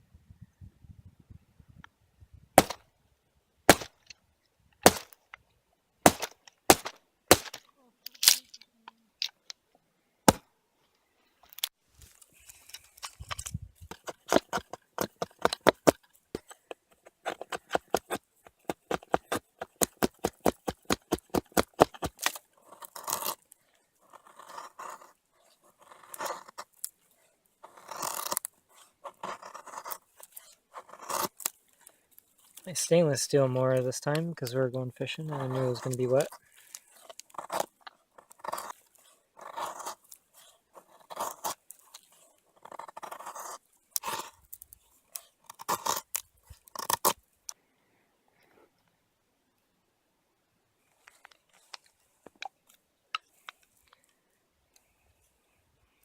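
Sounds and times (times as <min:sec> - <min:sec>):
hatchet chopping wood: 0:02.6 - 0:02.8, 0:03.7 - 0:04.0, 0:04.8 - 0:05.2, 0:06.0 - 0:07.6, 0:13.9 - 0:22.4.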